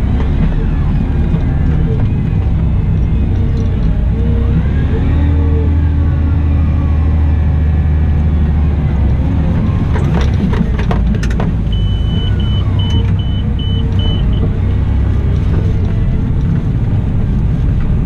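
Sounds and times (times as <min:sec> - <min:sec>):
loader engine humming: 0:00.0 - 0:18.0
high-pitched beeps: 0:11.7 - 0:14.5.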